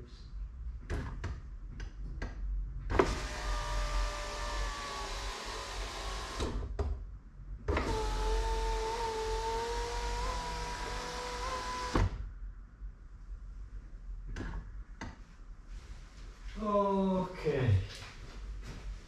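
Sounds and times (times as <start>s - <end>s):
electric window motor whine: 2.9s - 6.6s, 7.7s - 12.2s.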